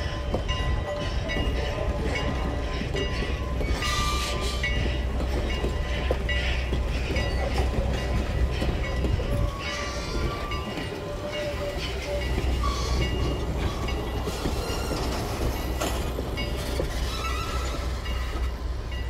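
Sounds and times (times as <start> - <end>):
crossing bell ringing: 0.0 - 19.0
train wheels rumbling on rails: 0.0 - 19.0.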